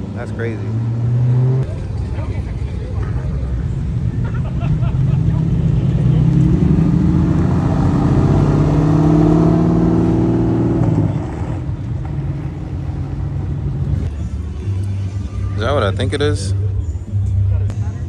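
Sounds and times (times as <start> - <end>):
car engine revving: 0.0 - 17.7.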